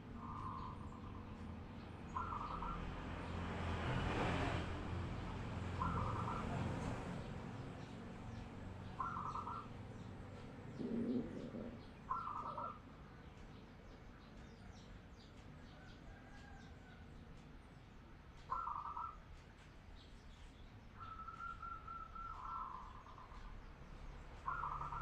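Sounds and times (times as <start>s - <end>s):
dove cooing: 0.0s - 1.3s, 2.1s - 2.8s, 5.8s - 6.7s, 9.0s - 9.9s, 10.5s - 12.8s, 18.5s - 19.2s, 21.0s - 23.4s, 24.4s - 25.0s
small birds chirping: 0.0s - 3.5s, 5.0s - 25.0s.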